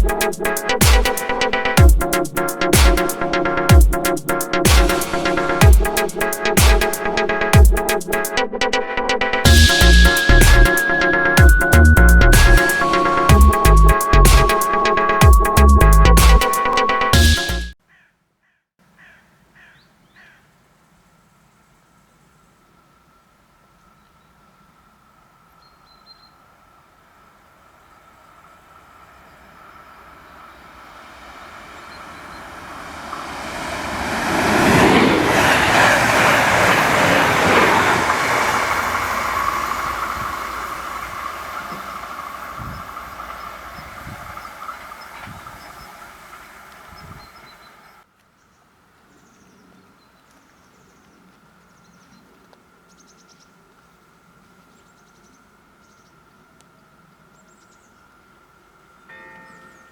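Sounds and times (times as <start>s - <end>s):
electric train passing: 0.0s - 17.8s, 26.6s - 48.0s
faint high chirping: 9.4s - 17.7s
wheels clattering on rails: 28.2s - 48.0s.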